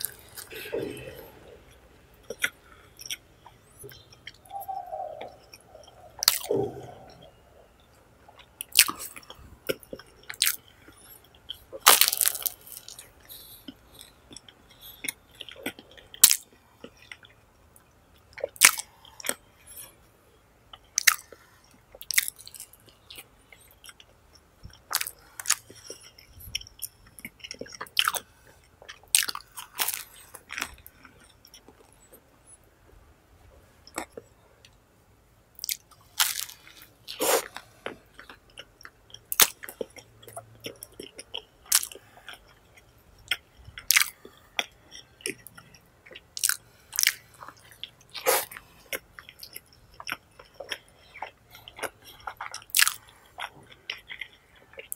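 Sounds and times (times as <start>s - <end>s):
crust crunches: 11.8s - 13.0s, 35.6s - 37.6s.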